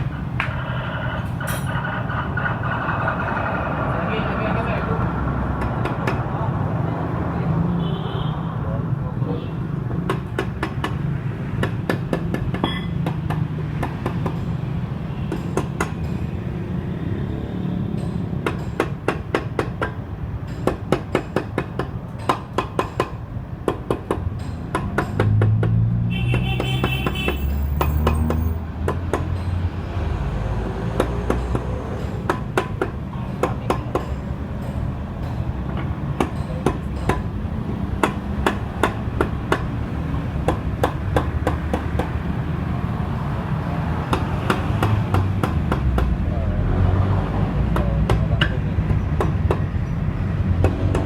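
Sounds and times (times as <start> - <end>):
metal taps and knocks: 5.4 - 6.3, 9.9 - 16.5, 17.9 - 29.8, 30.8 - 42.3, 44.0 - 46.2, 47.7 - 51.0.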